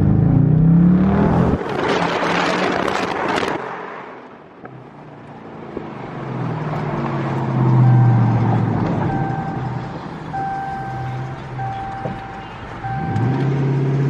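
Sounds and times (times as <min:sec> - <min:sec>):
car engine exhaust: 0:07.4 - 0:14.0.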